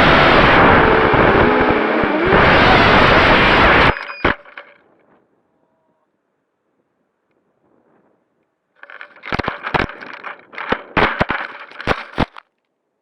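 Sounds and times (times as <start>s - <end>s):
rough crackling and rustling: 7.3s - 12.8s
sharp knocks: 8.8s - 12.3s.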